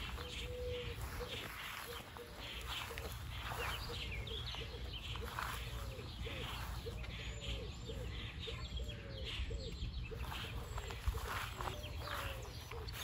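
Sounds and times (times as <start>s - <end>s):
bird calling in low notes: 0.0s - 13.0s.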